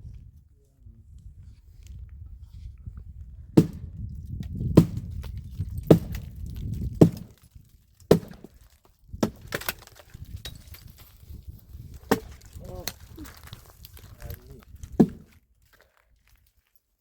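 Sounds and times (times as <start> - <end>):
firewood being chopped: 3.6 - 10.9, 11.8 - 15.8.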